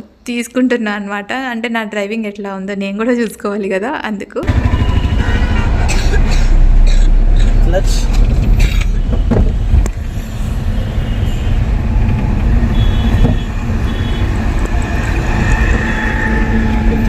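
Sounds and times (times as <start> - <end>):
car engine and road rumble: 4.5 - 15.8.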